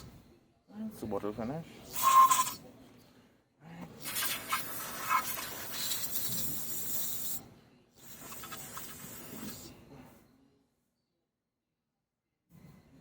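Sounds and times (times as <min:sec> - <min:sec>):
aerosol spraying: 0:04.0 - 0:07.4, 0:08.0 - 0:09.7.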